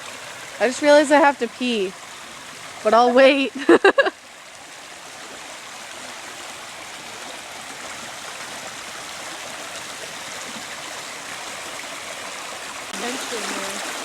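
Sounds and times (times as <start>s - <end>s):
stream flowing: 0.0s - 14.0s.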